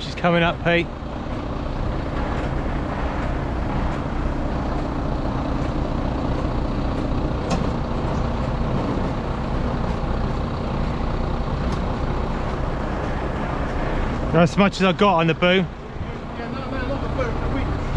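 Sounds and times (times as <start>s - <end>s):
truck engine running: 0.0s - 17.9s.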